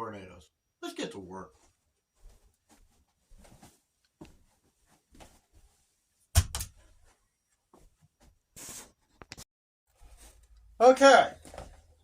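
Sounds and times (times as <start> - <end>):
faint handling sounds: 1.5 - 6.2, 6.8 - 10.8.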